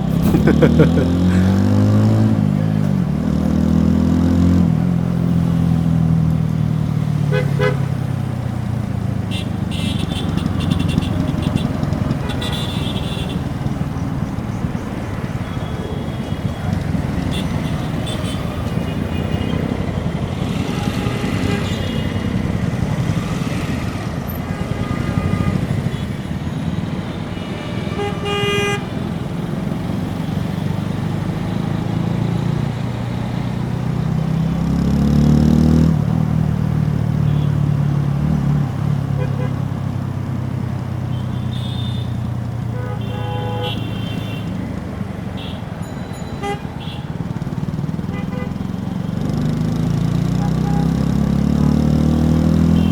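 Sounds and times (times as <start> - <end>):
motorcycle engine revving: 0.0 - 27.5, 28.8 - 41.2, 46.8 - 52.9
vehicle horns honking: 7.2 - 8.2, 9.2 - 13.9, 15.2 - 29.5, 37.2 - 37.9, 39.1 - 39.7, 41.0 - 44.7, 45.3 - 47.3, 48.0 - 49.0, 50.3 - 51.1, 52.6 - 52.9.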